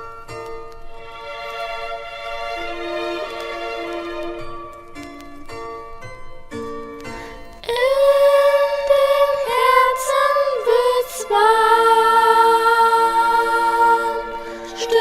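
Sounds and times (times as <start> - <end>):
person singing long notes: 7.6 - 15.0.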